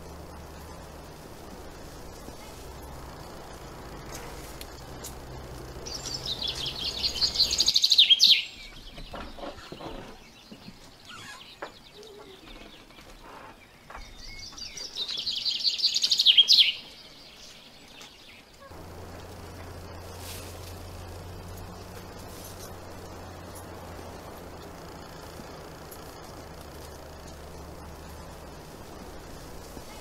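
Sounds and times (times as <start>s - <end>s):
low hum and hiss: 0.0s - 8.6s, 18.5s - 30.0s
songbird trilling: 5.2s - 8.8s, 14.2s - 17.6s.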